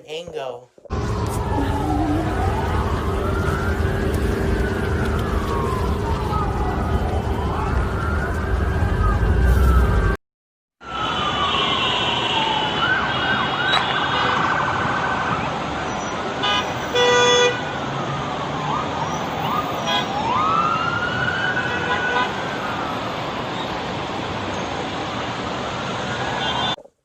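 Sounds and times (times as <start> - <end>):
sirens wailing: 0.9 - 10.2, 10.8 - 26.8
horn blasts: 16.4 - 17.6.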